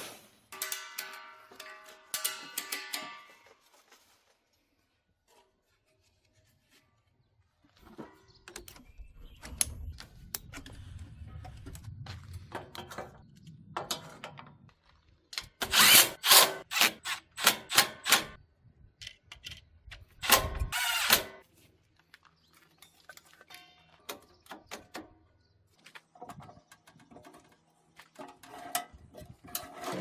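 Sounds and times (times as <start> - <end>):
metal parts clattering: 0.1 - 3.6
power drill running: 15.6 - 18.4, 20.2 - 21.4.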